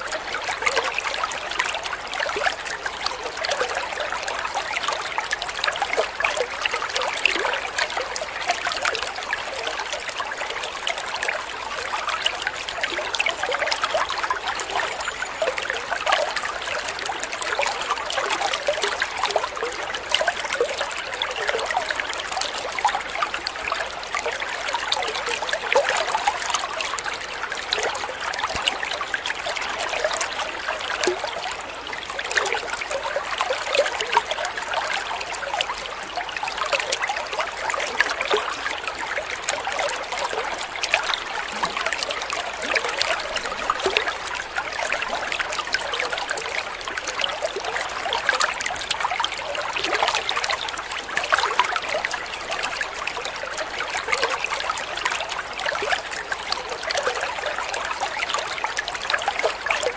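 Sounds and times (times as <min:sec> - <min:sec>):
running water trickling: 0:00.0 - 0:59.9.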